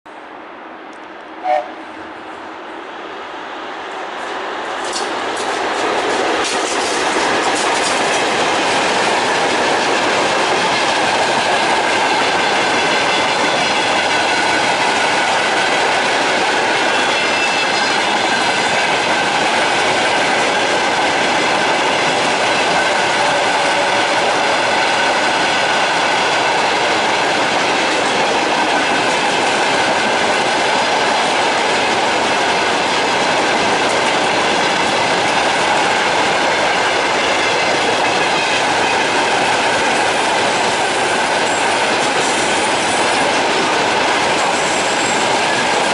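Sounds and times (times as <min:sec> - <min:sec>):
freight train rolling past: 0:00.1 - 0:45.9.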